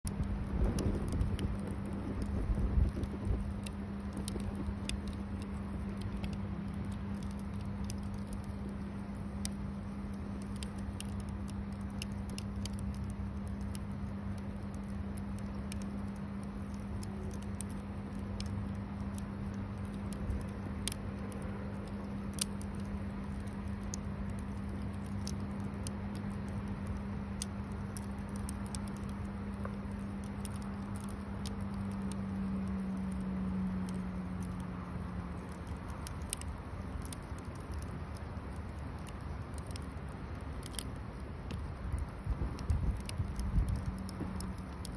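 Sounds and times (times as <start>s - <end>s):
low rumble: 0.0s - 44.9s
steady low hum: 0.0s - 44.9s
bonfire crackling and popping: 0.1s - 44.9s.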